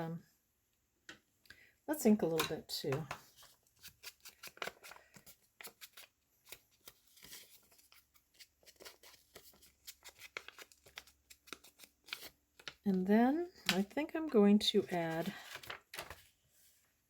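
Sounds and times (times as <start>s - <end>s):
paper rustling: 3.3s - 12.9s, 14.7s - 16.8s.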